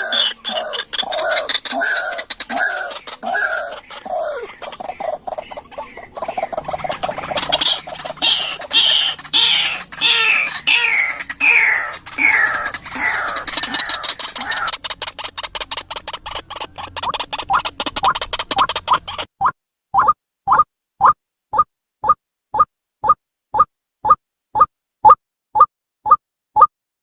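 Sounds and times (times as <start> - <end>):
waterhen harsh calls: 0.0 - 19.3
bird fast clicking series: 4.7 - 26.7.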